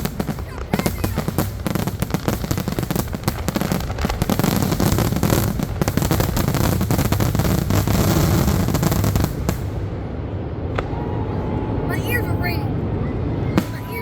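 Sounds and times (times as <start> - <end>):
fireworks crackling and banging: 0.0 - 11.1, 11.9 - 14.0
heavy low rumble: 0.0 - 14.0.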